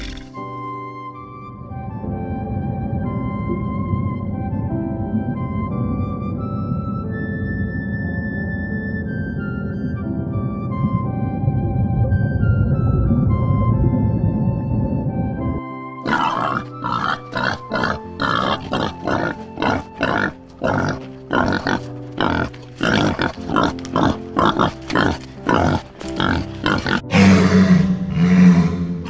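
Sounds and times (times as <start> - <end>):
background music: 0.0 - 29.0
wild boar grunting and snuffling: 16.0 - 28.9.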